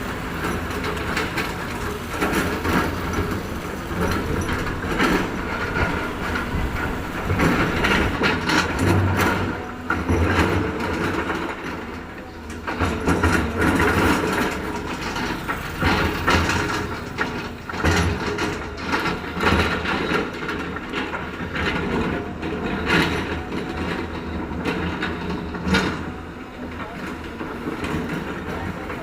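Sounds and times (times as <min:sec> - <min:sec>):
machinery scraping: 0:00.0 - 0:19.9
machinery clanking: 0:00.0 - 0:29.0.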